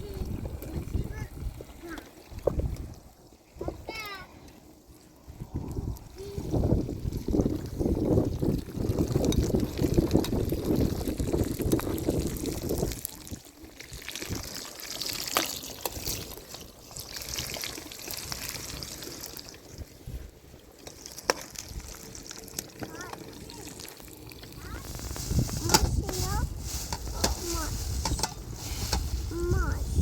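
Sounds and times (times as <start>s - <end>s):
water pouring with gurgle: 0.0s - 30.0s
faint hiss: 22.4s - 30.0s.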